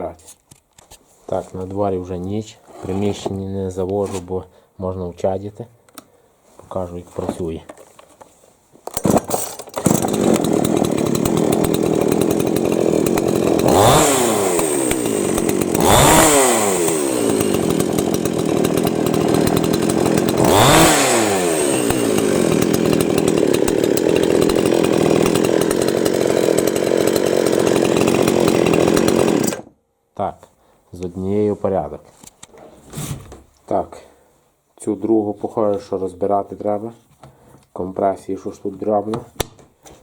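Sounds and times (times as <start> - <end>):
chainsaw starting and idling: 8.9 - 29.8
chainsaw throttle blips: 9.0 - 29.7.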